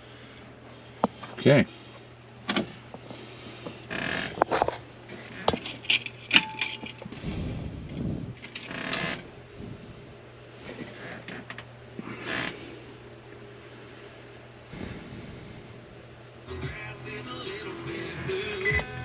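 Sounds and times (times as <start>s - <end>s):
low rumbling: 7.2s - 8.4s.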